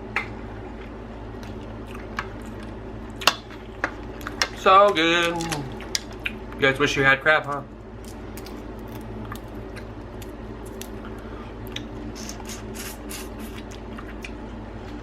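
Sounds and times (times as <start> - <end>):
steady low hum: 0.0 - 15.0
wet squishing: 4.2 - 6.4.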